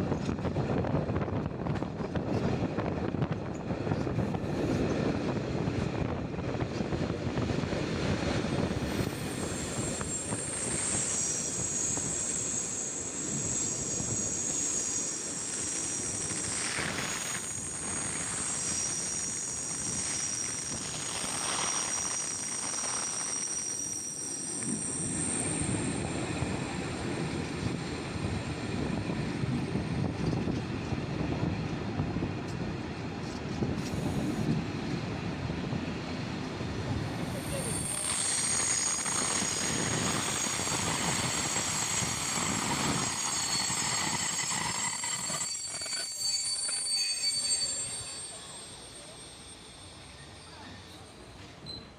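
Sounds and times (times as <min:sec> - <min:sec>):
train wheels rumbling: 0:00.0 - 0:51.9
high-pitched wheel squeal: 0:08.1 - 0:28.3, 0:36.8 - 0:51.9.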